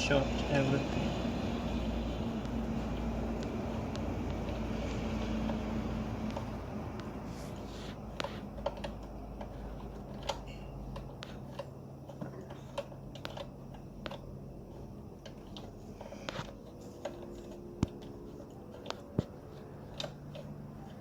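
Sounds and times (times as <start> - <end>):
low steady hum: 0.0 - 21.0
tools clicking and tapping: 8.1 - 14.4, 15.2 - 21.0.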